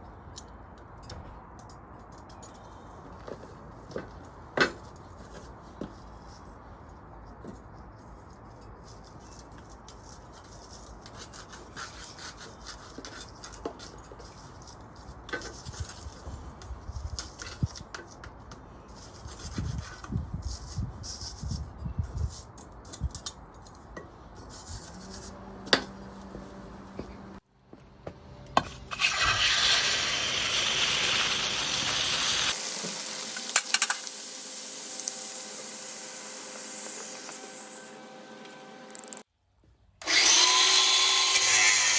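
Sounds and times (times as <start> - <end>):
scratchy rubbing and scraping: 7.6 - 17.7, 18.8 - 23.0, 24.3 - 25.5
loud sizzling hiss: 28.9 - 38.0.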